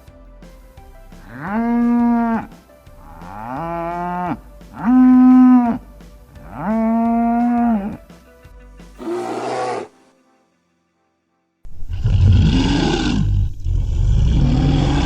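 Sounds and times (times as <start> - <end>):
cow mooing: 9.0 - 9.9.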